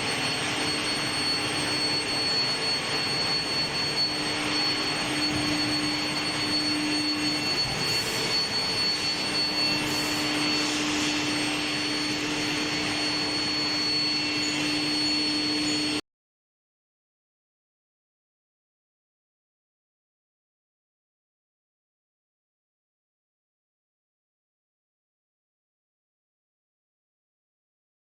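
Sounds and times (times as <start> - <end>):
industrial machinery rushing: 0.0 - 14.7
high-pitched whine: 0.0 - 16.0.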